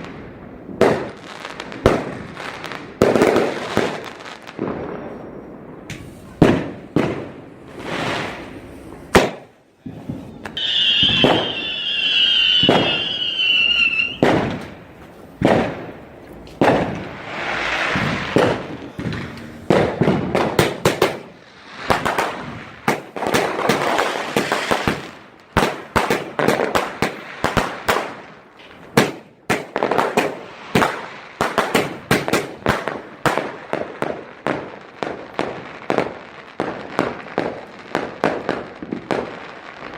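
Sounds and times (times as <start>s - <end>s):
fireworks bangs and crackling: 0.0s - 39.9s
falling firework whistle: 4.5s - 6.5s, 9.9s - 14.7s.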